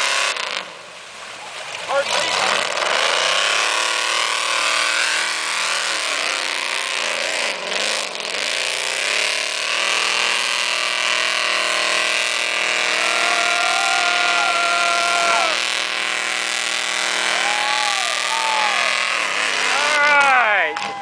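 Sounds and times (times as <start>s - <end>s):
engine running at high revs: 0.0s - 21.0s.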